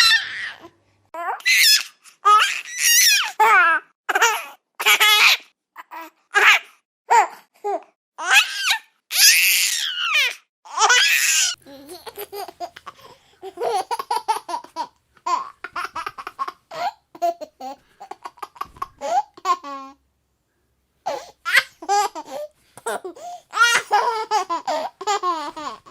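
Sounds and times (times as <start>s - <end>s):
baby laughing: 10.7s - 20.0s, 21.1s - 25.9s.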